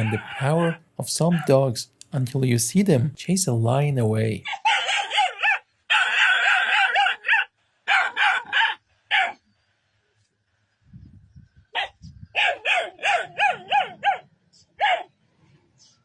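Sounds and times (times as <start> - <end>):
dog barking aggressively: 4.5 - 9.4, 11.8 - 15.1.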